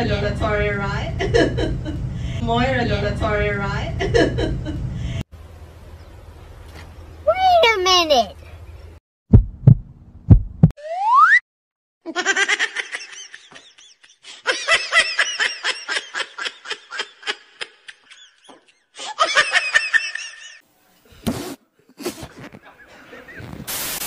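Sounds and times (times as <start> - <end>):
high-pitched laughter: 12.1 - 20.6.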